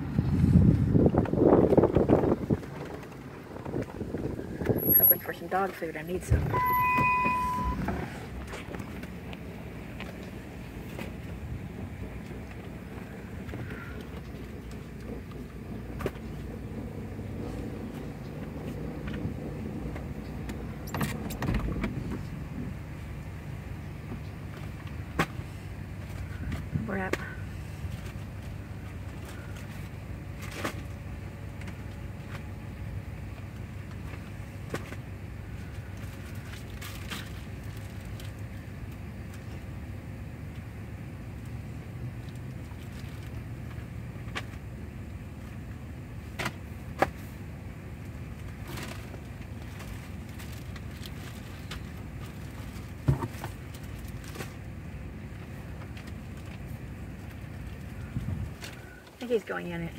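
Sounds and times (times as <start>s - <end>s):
car idling hum: 0.0s - 59.9s.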